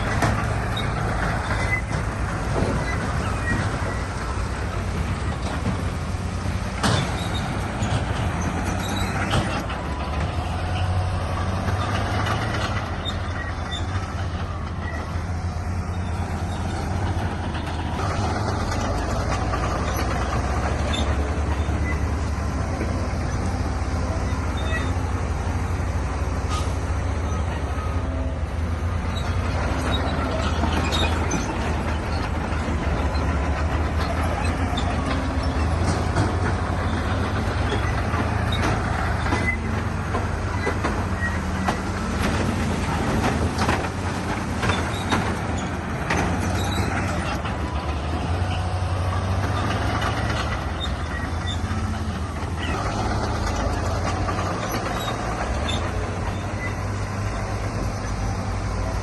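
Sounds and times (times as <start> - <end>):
sharp knocks and clanks: 0.0 - 15.5, 29.2 - 58.5
heavy diesel machinery running: 0.0 - 59.0.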